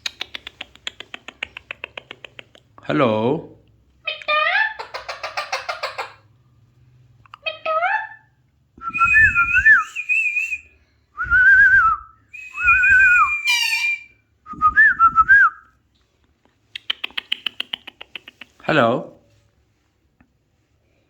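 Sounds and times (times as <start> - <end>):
parakeet fast clicking chatter: 0.0 - 2.7, 4.8 - 6.2, 16.8 - 18.6
parakeet whistling: 12.4 - 14.2.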